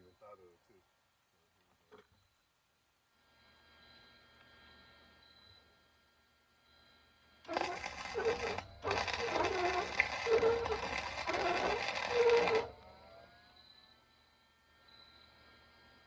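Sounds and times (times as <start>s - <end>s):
welder arc crackling: 7.5s - 12.7s.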